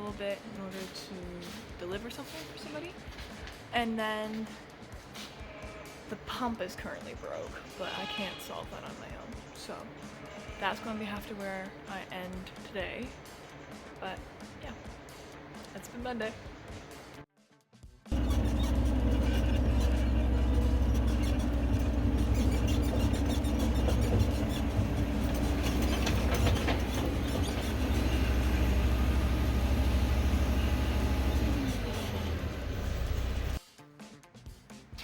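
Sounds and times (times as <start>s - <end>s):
heavy machinery droning: 18.1s - 33.6s.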